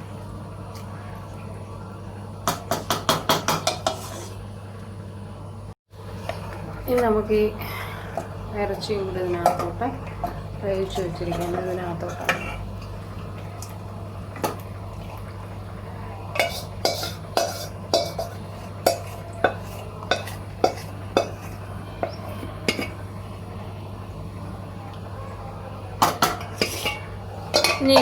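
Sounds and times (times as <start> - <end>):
metal spoon clinking against pot: 16.3 - 23.0, 26.0 - 28.0.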